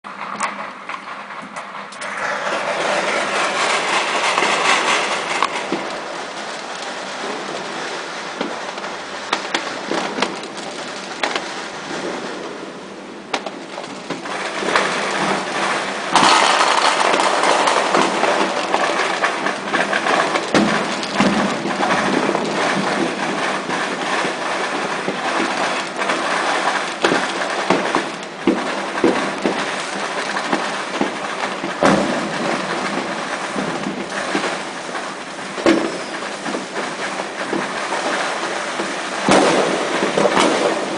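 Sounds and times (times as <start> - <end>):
firecrackers crackling: 0.1 - 40.9
loud firework bangs: 0.1 - 40.9.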